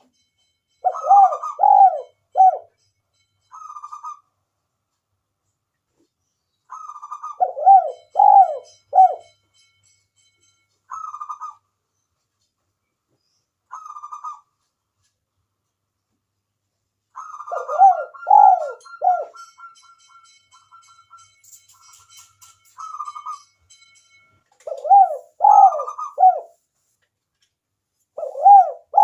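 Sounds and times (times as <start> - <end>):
dove cooing: 0.8 - 2.7, 6.7 - 9.3, 17.2 - 19.7, 24.6 - 26.6, 28.2 - 29.0.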